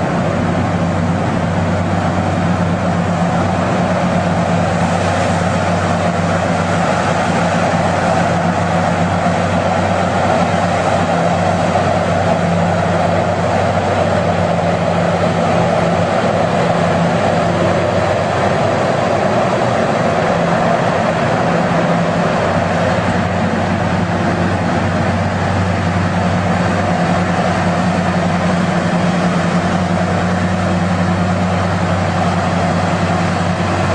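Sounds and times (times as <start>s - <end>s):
heavy machinery engine droning: 0.0s - 33.9s.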